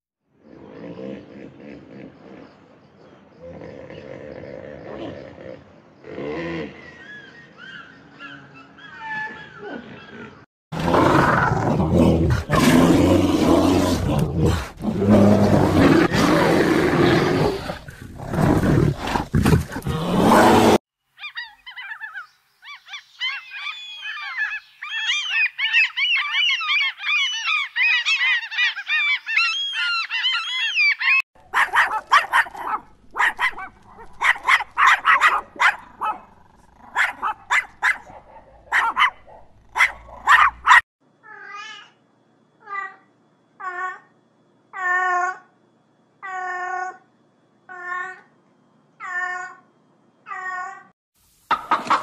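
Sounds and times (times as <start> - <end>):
dog barking: 31.5 - 36.3, 36.9 - 40.8.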